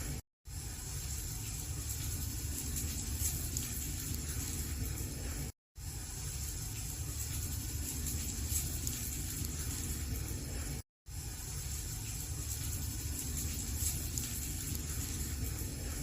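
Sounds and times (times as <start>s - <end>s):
wood crackling: 1.1s - 5.2s, 6.2s - 10.5s, 11.7s - 15.9s.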